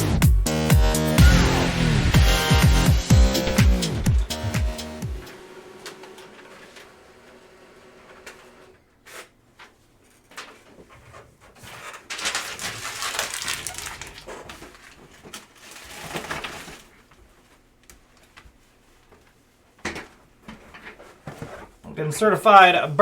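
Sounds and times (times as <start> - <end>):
packaging crinkling tear: 11.7 - 16.9.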